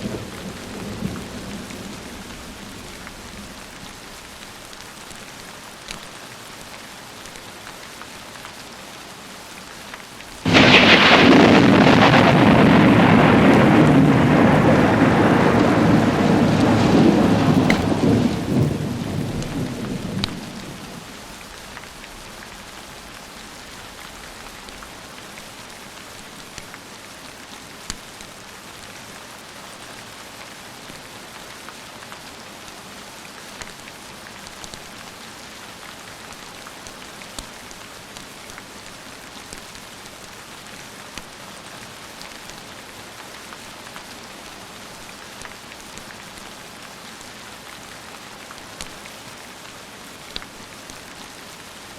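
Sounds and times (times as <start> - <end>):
steady rain: 0.0 - 51.9
thunder rolling: 10.5 - 21.0.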